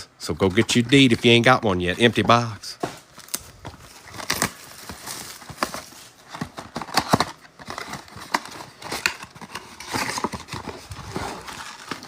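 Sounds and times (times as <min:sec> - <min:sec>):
wrappers crinkling: 0:03.1 - 0:12.0.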